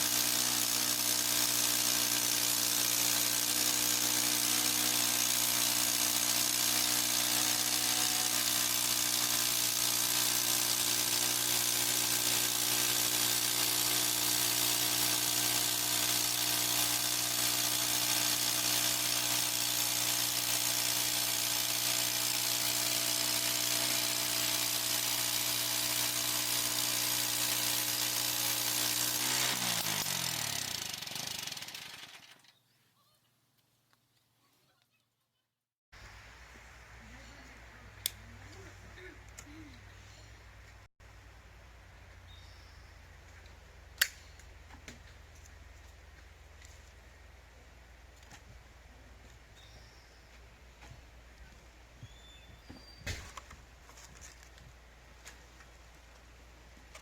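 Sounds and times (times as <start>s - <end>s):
sawmill gasoline engine running: 0.0s - 32.4s.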